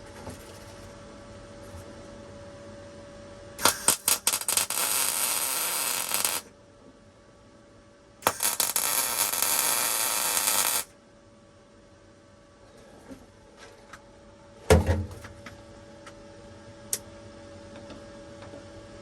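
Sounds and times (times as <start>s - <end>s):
welder arc crackling: 3.6s - 6.5s, 8.2s - 10.9s.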